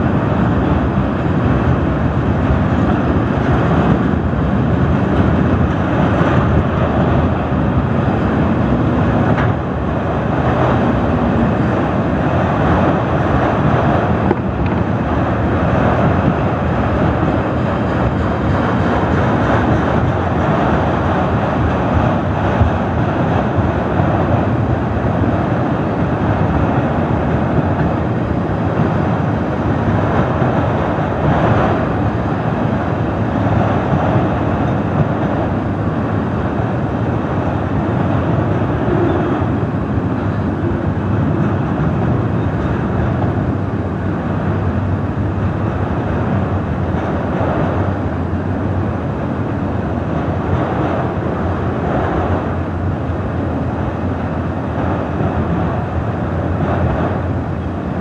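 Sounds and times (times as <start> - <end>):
train wheels on rails: 0.0 - 58.0.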